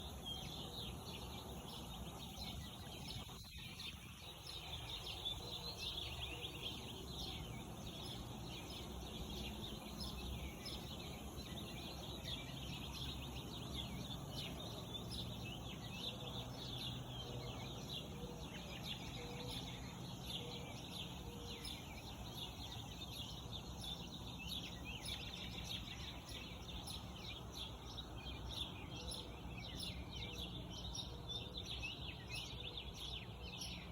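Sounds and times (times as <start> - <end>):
low background noise: 0.0 - 33.9
small birds chirping: 0.0 - 33.9.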